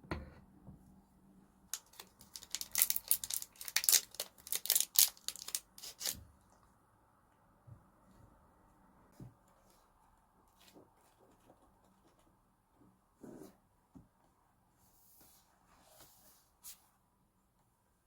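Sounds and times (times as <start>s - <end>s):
packaging crinkling and tearing: 1.8s - 6.2s.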